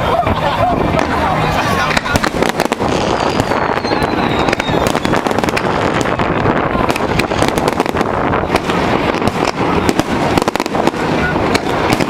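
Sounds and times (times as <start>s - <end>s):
continuous fireworks rumble: 0.0s - 12.0s
fireworks bangs and crackles: 0.0s - 12.0s.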